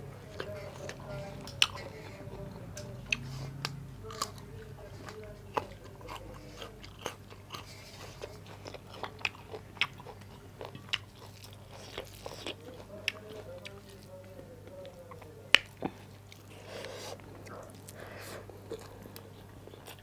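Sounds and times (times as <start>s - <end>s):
faint steady hum: 0.0s - 20.0s
mouth clicks and crunches: 0.0s - 20.0s
person chewing food: 0.0s - 20.0s.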